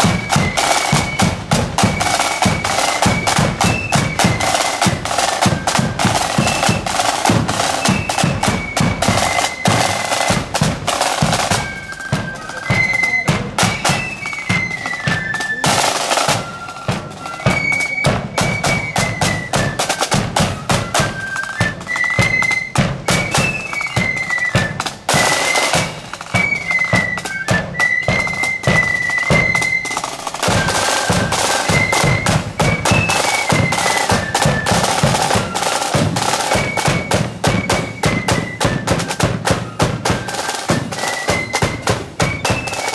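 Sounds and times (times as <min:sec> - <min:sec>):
flute melody: 0:00.0 - 0:42.9
snare drum rolls: 0:00.0 - 0:42.9.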